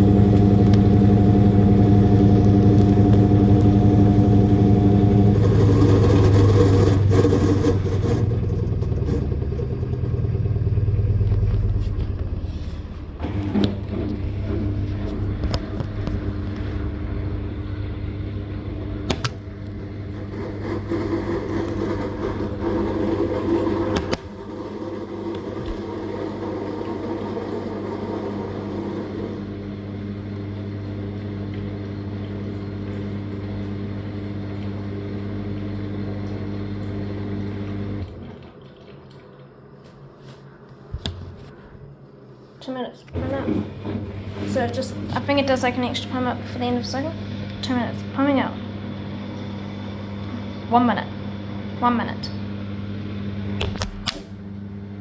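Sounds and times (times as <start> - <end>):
washing machine drain pump humming: 0.0 - 42.3, 43.1 - 55.0
water gurgling: 31.0 - 40.7.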